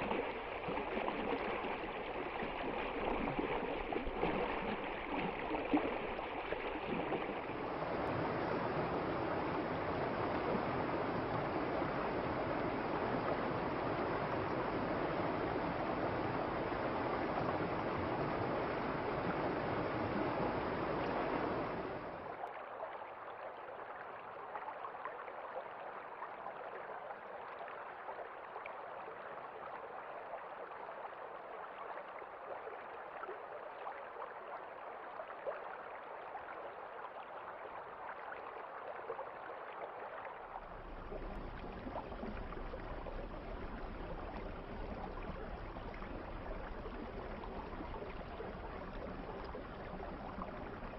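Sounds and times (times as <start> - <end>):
river water rushing: 0.0 - 22.2.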